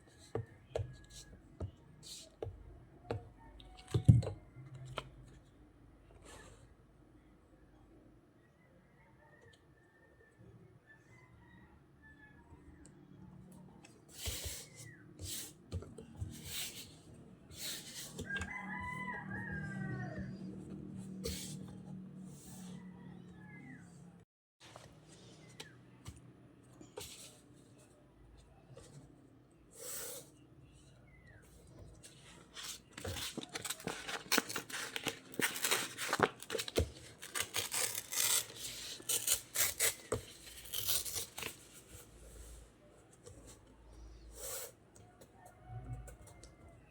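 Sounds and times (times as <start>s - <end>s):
paper rustling and scraping: 16.2s - 18.6s, 32.0s - 42.6s
rooster crowing: 18.2s - 20.7s, 45.2s - 46.9s.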